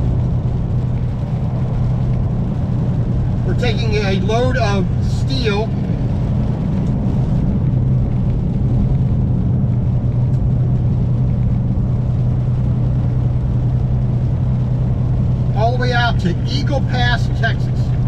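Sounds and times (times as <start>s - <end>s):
diesel truck engine droning: 0.0s - 18.0s
road noise: 0.0s - 18.0s.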